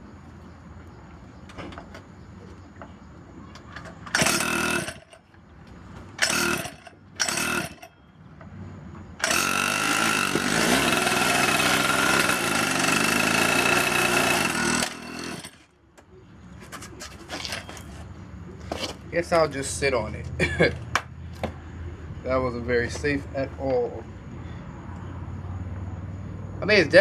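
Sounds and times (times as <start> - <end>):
two-stroke engine revving: 4.1 - 5.2, 6.2 - 7.9, 9.2 - 15.6.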